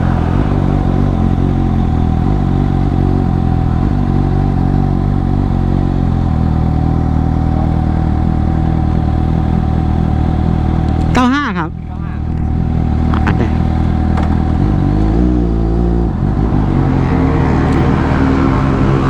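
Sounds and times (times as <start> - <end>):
thin steady whine: 0.0 - 14.0
motorcycle engine running steadily: 0.0 - 19.0.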